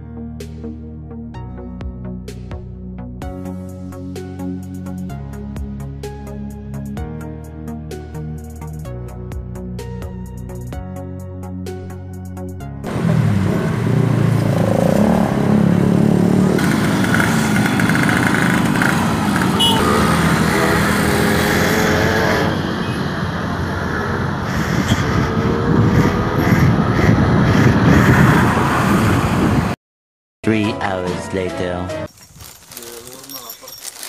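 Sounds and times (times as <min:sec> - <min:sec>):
vehicle engine rumbling: 0:12.8 - 0:29.8, 0:32.1 - 0:34.0.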